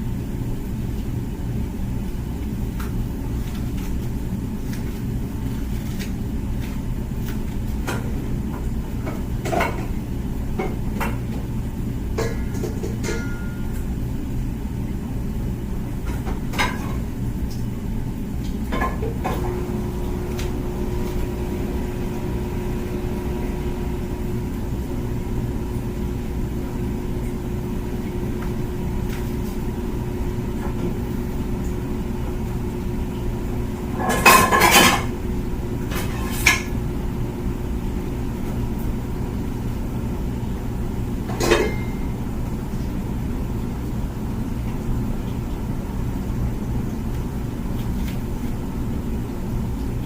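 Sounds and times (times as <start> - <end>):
pump hum: 0.0 - 50.0
dishes clattering: 12.2 - 13.5, 34.0 - 35.1, 41.3 - 42.0
dishwasher spraying water: 18.8 - 37.0.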